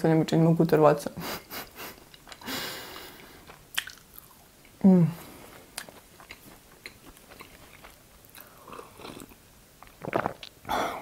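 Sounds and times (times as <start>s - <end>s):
chewing with mouth clicks: 2.0s - 4.8s, 5.4s - 10.6s.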